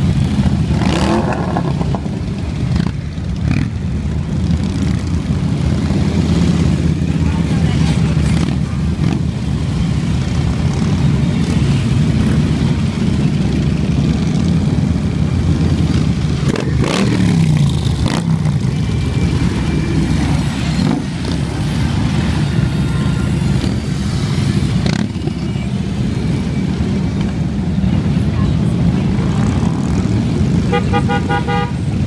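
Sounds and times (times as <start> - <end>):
motorcycle passing close: 0.0 - 9.7, 15.5 - 25.6
motorcycle engines rumbling: 0.0 - 32.0.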